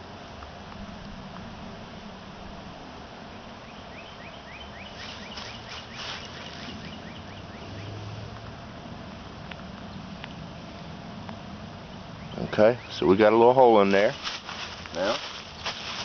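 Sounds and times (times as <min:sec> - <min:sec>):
honeybees humming: 0:01.6 - 0:16.0
bird calling rising notes: 0:03.6 - 0:08.2.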